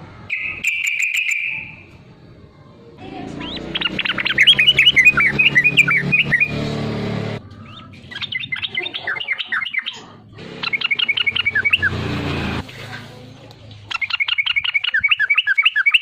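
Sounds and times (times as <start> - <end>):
bulbul rapid chirping: 0.3 - 1.8, 3.4 - 6.6, 7.4 - 12.0, 13.9 - 16.0.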